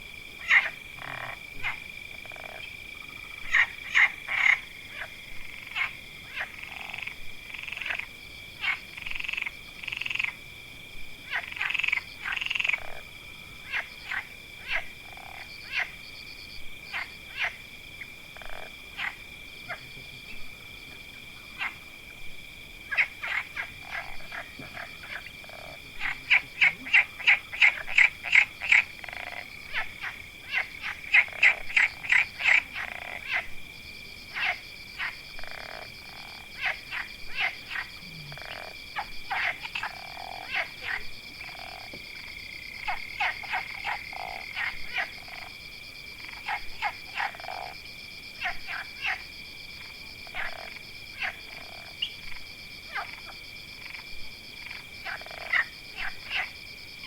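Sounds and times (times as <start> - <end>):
frogs croaking: 0.0 - 57.0.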